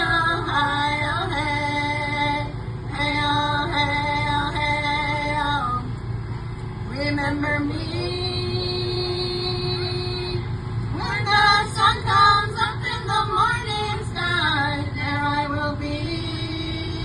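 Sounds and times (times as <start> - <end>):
young women singing: 0.0 - 5.9, 6.9 - 17.0.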